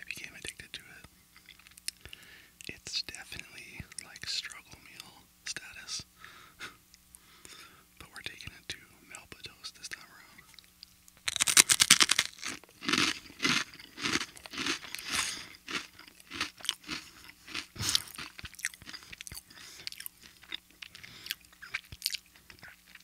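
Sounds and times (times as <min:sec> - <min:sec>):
crunchy chewing: 0:00.3 - 0:05.1, 0:09.8 - 0:23.0
crunchy bite into cracker: 0:11.2 - 0:23.0.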